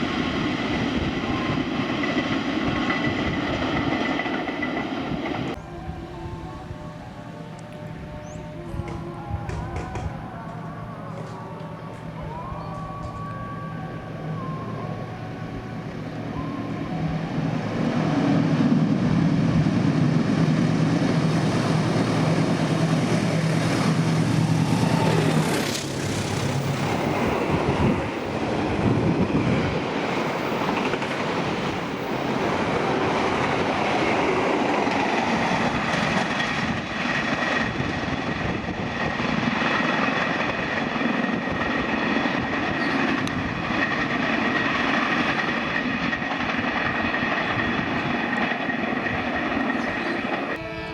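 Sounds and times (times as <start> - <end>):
train wagons rumbling by: 0.0 - 5.6, 8.7 - 50.9
locomotive engine droning: 0.0 - 50.9
high steady ringing tone: 16.3 - 17.8.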